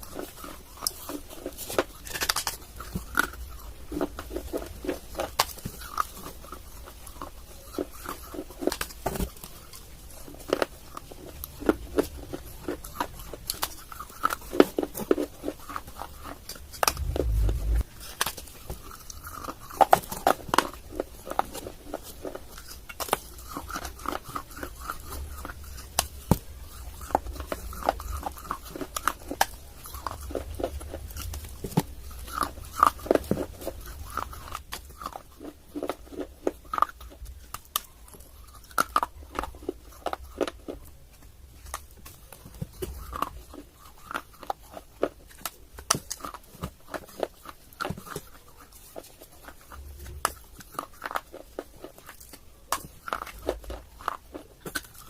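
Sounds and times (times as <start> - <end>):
biting and crunching clay: 0.0 - 55.0
chewing: 0.0 - 55.0
dull low thump: 16.8 - 17.8.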